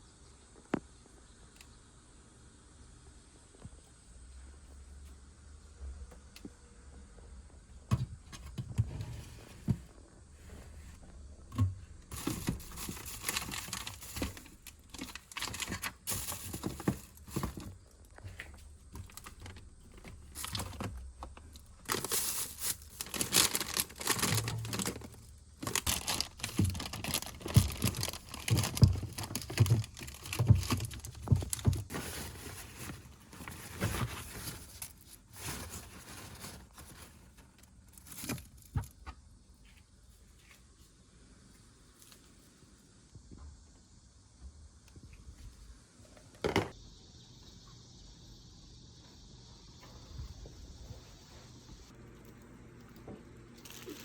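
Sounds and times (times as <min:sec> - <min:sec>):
household items clicking and knocking: 0:11.5 - 0:32.9
plastic packaging crinkling: 0:12.1 - 0:17.8, 0:18.9 - 0:38.6, 0:52.1 - 0:54.0.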